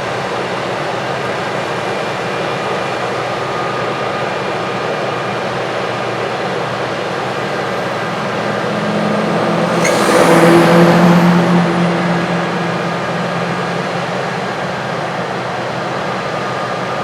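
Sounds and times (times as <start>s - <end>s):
farm machine diesel engine: 0.9s - 17.0s
background machinery: 5.8s - 17.0s.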